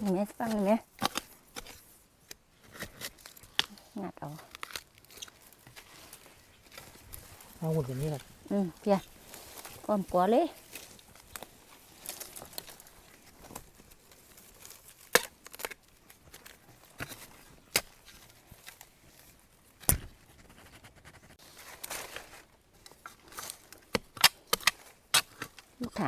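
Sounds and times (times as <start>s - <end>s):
tool striking earth and roots: 0.0s - 20.4s, 21.6s - 26.0s
soil and dry leaves rustling: 0.0s - 26.0s.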